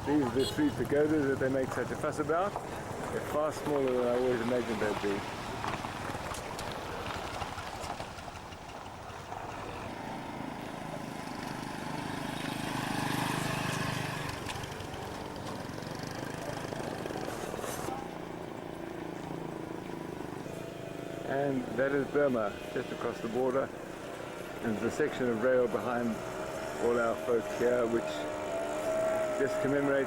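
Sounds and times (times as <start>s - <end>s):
outdoor background noise: 0.0s - 30.0s
vehicle engine passing by: 9.4s - 30.0s.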